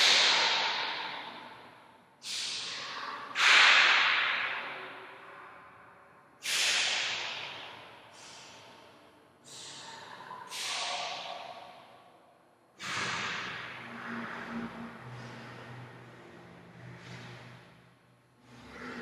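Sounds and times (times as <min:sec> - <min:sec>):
person making sharp hissing noises: 0:02.2 - 0:03.7, 0:06.4 - 0:08.7, 0:09.4 - 0:11.5.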